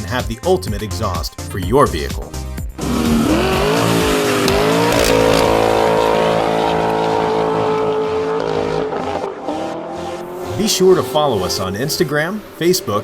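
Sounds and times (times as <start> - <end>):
car engine revving: 2.7 - 13.0.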